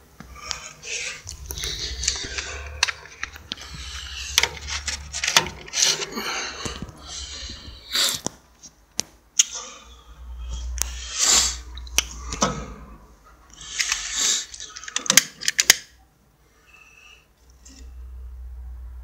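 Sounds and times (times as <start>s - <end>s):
low rumble: 1.1s - 8.2s, 9.8s - 13.6s.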